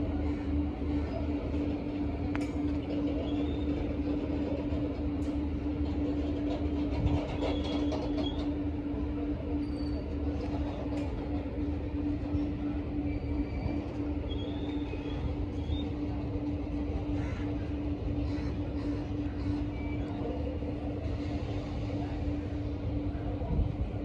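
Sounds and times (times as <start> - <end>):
wheels rumbling on rail: 0.0 - 24.0.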